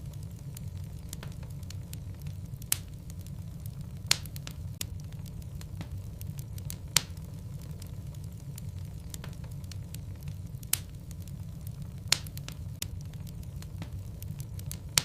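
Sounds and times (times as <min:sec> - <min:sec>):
flames rumbling: 0:00.0 - 0:15.0
small crackles: 0:00.0 - 0:15.0.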